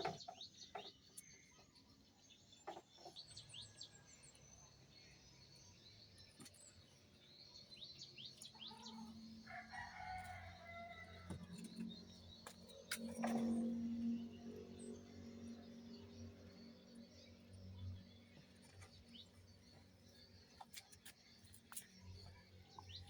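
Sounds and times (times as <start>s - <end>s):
faint bird chirps: 0.0s - 10.7s.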